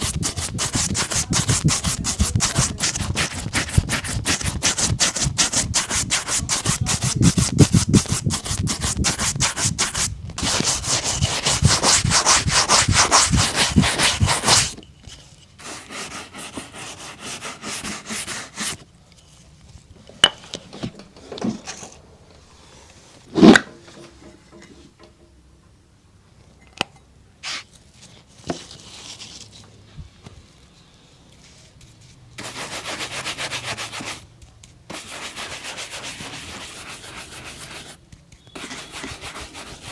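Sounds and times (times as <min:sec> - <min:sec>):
rubbing strokes on leather shoe: 0:00.0 - 0:14.8, 0:15.6 - 0:18.8, 0:32.4 - 0:34.2, 0:34.9 - 0:39.9.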